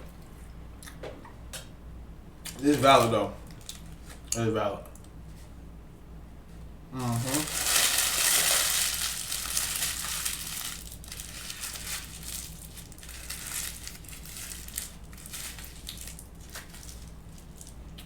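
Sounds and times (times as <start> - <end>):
crinkling and crunching: 7.0 - 18.0.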